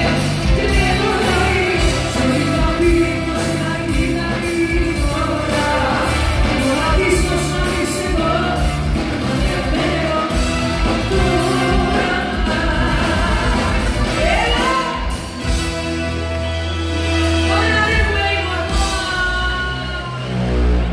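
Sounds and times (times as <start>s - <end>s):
woman singing: 0.0s - 15.2s
live band music: 0.0s - 20.9s.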